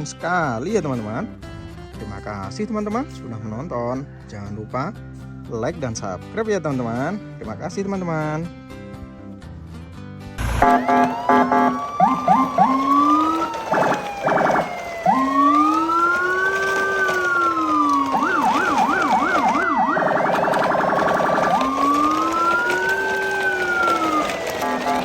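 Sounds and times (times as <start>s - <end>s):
electronic siren wailing and yelping: 10.4s - 25.0s
siren tone sliding downward: 10.4s - 25.0s.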